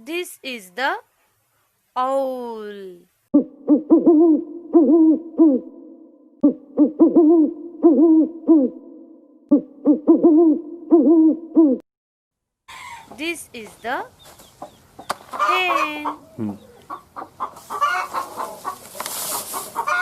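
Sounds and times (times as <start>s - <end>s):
owl hooting: 3.4s - 11.8s, 14.6s - 20.0s.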